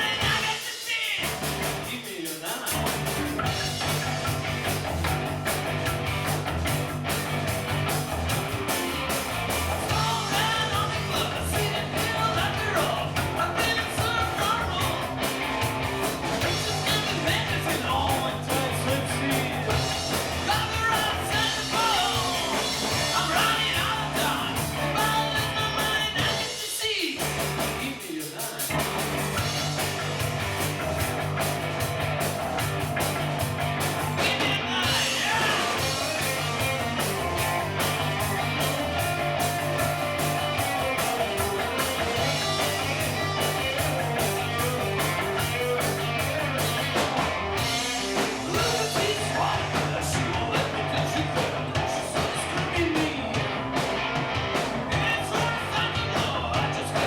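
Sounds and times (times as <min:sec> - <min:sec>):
rock band playing: 0:00.0 - 0:57.0
person singing: 0:09.9 - 0:15.1, 0:16.4 - 0:27.2, 0:34.2 - 0:36.8, 0:40.6 - 0:53.5, 0:54.9 - 0:57.0.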